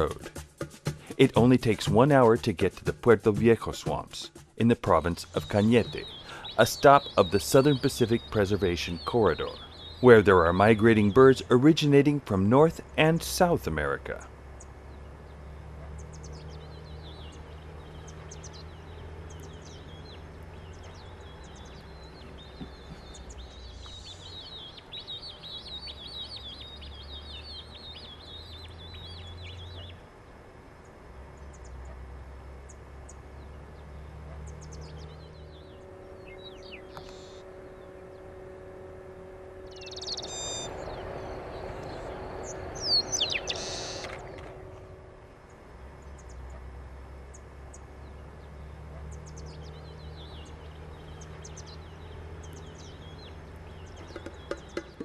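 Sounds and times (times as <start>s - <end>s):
birds chirping and calling: 0.0s - 0.3s, 1.1s - 30.0s, 32.6s - 46.7s, 47.3s - 55.0s
low steady rumble: 1.1s - 55.0s.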